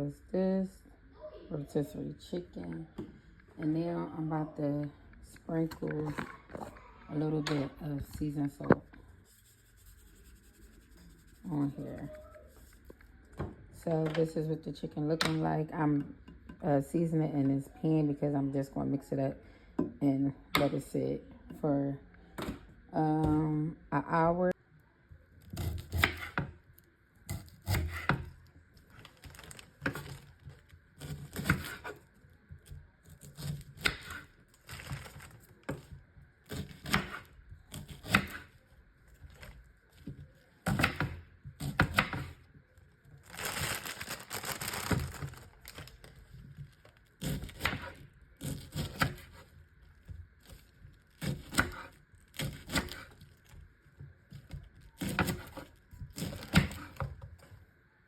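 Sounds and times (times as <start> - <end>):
rustling: 42.7 - 47.6.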